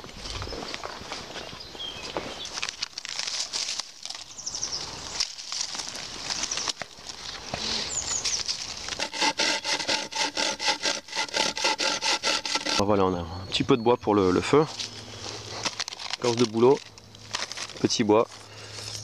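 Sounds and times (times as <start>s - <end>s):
crackles and rustling: 0.0s - 9.0s, 14.6s - 19.0s
hand saw cutting wood: 8.8s - 12.9s.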